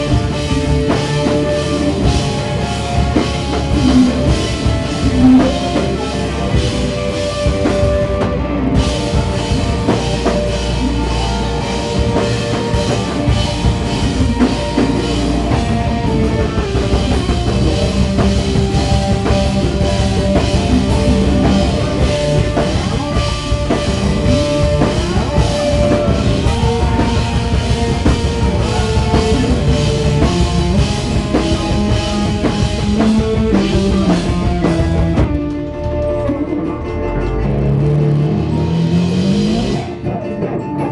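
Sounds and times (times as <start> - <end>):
drum kit beat: 0.0 - 40.8
rock band playing live: 0.0 - 40.9.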